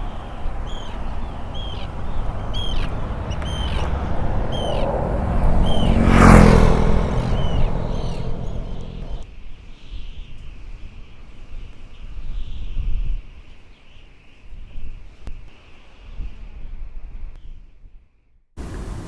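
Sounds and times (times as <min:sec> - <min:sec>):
vehicle passing: 0:00.0 - 0:09.2.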